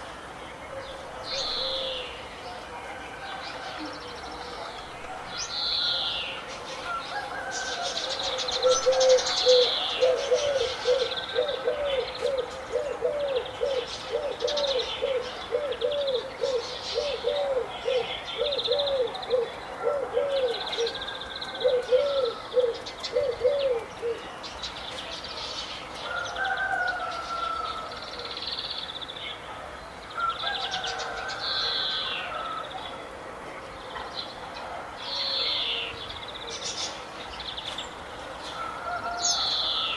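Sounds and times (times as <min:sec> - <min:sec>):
birds chirping and trilling: 0:00.4 - 0:33.0
low hooting bird call: 0:05.6 - 0:24.2.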